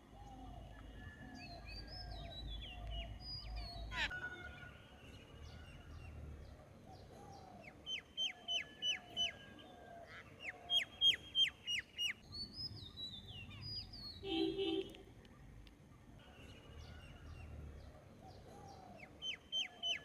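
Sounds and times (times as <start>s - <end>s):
birds calling high notes: 1.9s - 6.2s.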